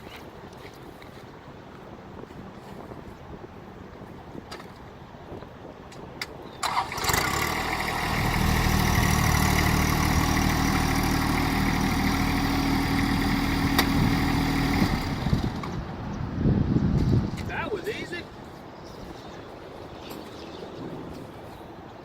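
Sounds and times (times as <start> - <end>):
tractor diesel engine running: 6.6 - 16.2.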